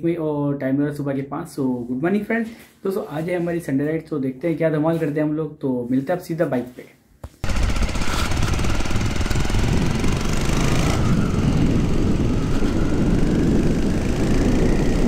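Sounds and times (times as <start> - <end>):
motorcycle engine running: 7.4 - 15.0.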